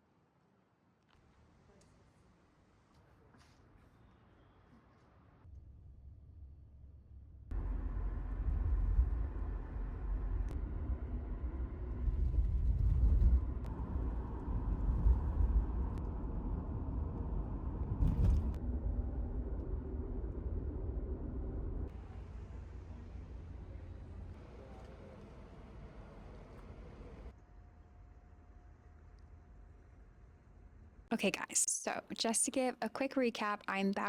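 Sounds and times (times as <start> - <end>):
car rumbling in motion: 7.5 - 24.6.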